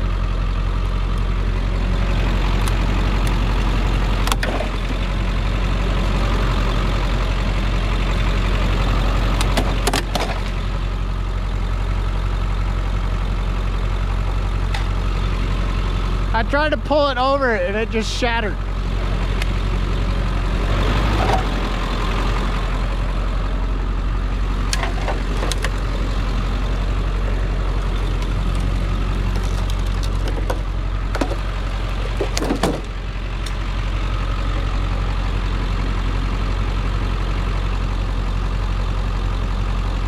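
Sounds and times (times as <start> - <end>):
vehicle engine idling: 0.0 - 40.0
metallic knocks and clanks: 29.3 - 33.0.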